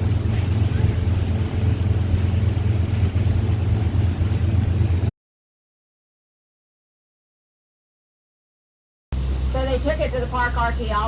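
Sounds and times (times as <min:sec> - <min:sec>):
boat motor droning: 0:00.0 - 0:05.1, 0:09.2 - 0:11.0
wind and water noise: 0:00.0 - 0:05.1, 0:09.2 - 0:11.0.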